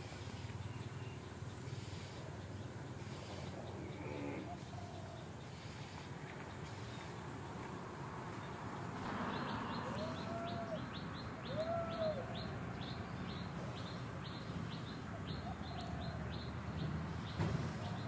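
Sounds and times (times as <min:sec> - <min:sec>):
forest birds chirping: 0:00.0 - 0:18.0
whistled bird calls: 0:09.4 - 0:13.5.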